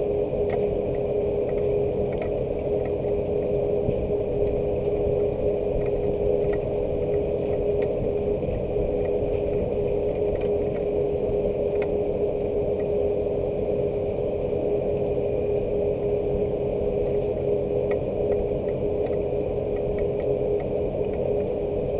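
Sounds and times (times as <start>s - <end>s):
low mechanical hum: 0.0s - 21.9s
raindrops ticking: 0.5s - 3.2s, 5.8s - 8.3s.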